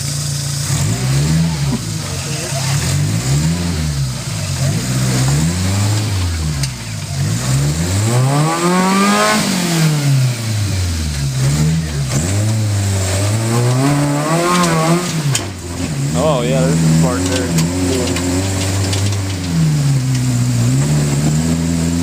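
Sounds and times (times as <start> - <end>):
engine revving: 0.0 - 22.0.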